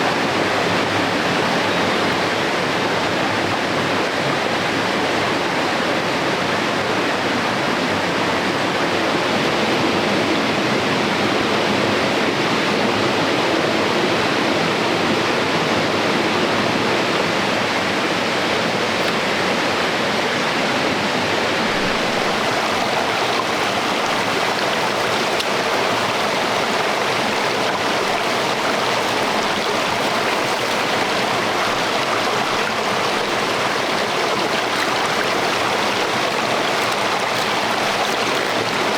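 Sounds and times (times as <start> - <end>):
stream rushing over rocks: 18.0 - 38.9.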